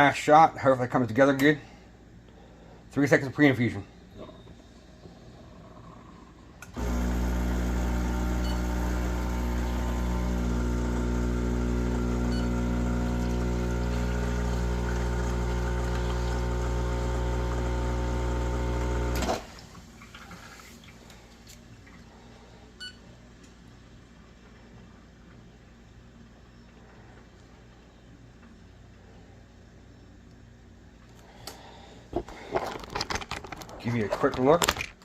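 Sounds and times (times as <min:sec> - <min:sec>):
espresso machine pump humming: 0:06.6 - 0:19.5.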